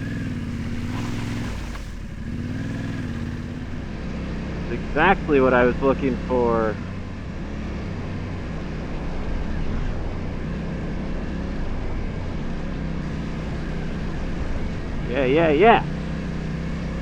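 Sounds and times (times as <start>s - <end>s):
motorcycle engine running: 0.0s - 17.0s
steady rushing noise: 13.0s - 17.0s.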